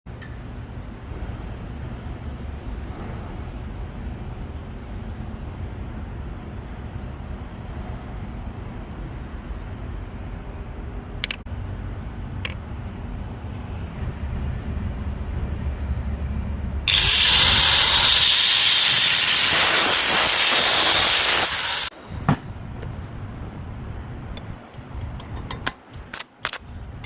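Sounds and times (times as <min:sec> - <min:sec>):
welding arc crackling hiss: 0:16.9 - 0:21.9
low rumble: 0:22.0 - 0:25.4.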